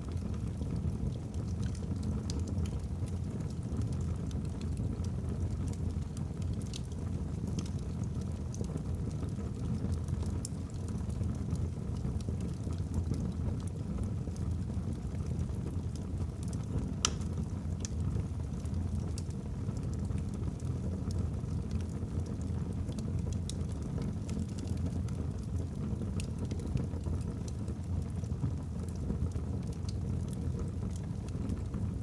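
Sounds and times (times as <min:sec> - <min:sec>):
fire crackling and popping: 0:00.0 - 0:32.0.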